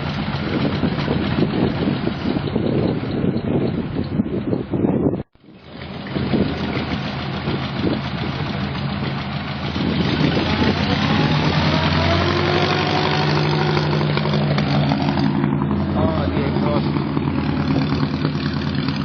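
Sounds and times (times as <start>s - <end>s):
car engine running: 5.4s - 19.0s.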